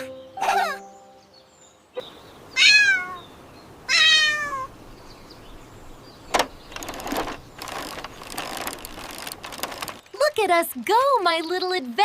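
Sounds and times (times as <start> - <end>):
cat meowing: 2.6 - 3.2, 3.9 - 4.7
rattling noise: 6.3 - 10.1.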